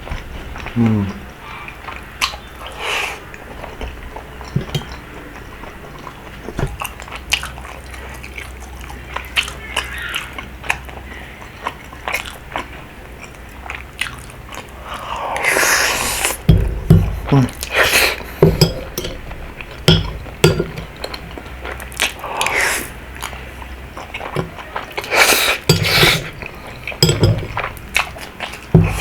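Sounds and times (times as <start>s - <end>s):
person chewing: 0.0s - 29.0s.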